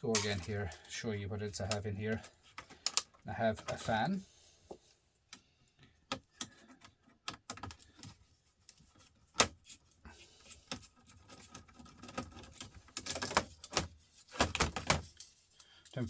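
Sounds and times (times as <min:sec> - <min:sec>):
laptop parts clicking and clattering: 0:01.6 - 0:04.1, 0:05.3 - 0:16.0.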